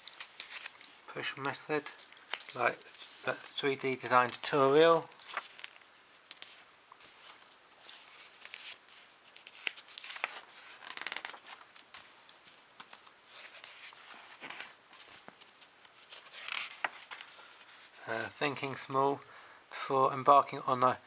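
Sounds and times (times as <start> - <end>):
page swishes: 0.0 - 17.9
magazine pages rustling: 0.0 - 19.0.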